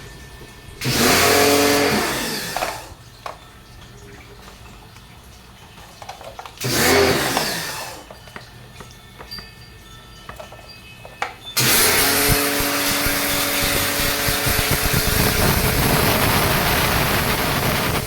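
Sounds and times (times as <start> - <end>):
power tool motor winding down: 0.8 - 2.9, 6.6 - 8.1, 11.6 - 18.0.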